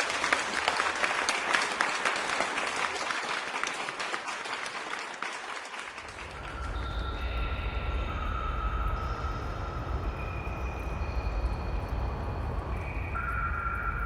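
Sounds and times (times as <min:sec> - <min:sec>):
audience applauding: 0:00.0 - 0:14.0
low steady drone: 0:06.0 - 0:14.0.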